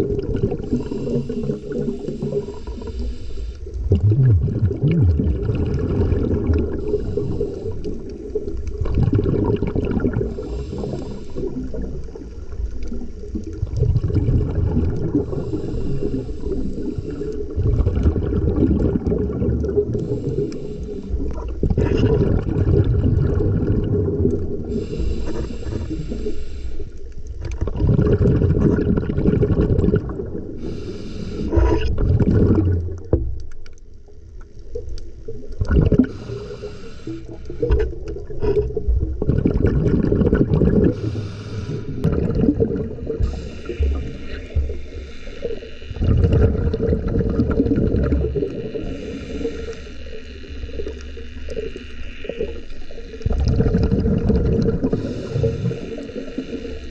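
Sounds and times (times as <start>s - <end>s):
bubbling exhalations: 0.0s - 3.1s, 3.7s - 26.3s, 27.5s - 33.2s, 35.3s - 49.3s, 53.2s - 56.9s
hissing regulator inhalations: 0.6s - 5.4s, 6.2s - 8.8s, 10.1s - 13.5s, 15.0s - 17.6s, 19.6s - 21.7s, 23.3s - 27.6s, 30.3s - 32.8s, 35.8s - 38.9s, 40.5s - 46.4s, 48.2s - 53.2s, 53.8s - 56.9s.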